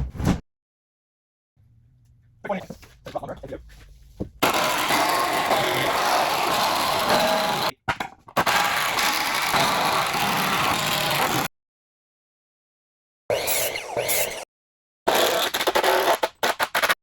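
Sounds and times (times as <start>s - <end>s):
power tool running: 4.4s - 7.7s, 8.4s - 11.5s.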